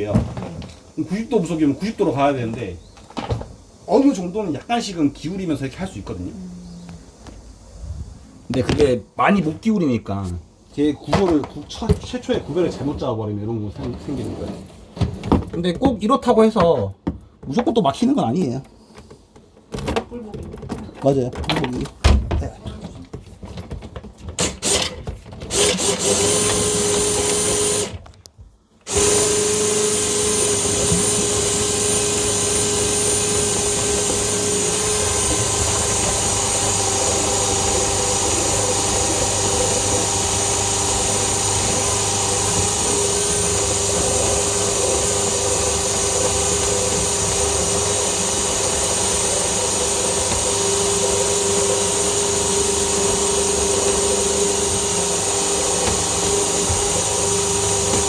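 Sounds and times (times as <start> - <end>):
electric motor whining: 25.5 - 28.0, 28.9 - 58.0.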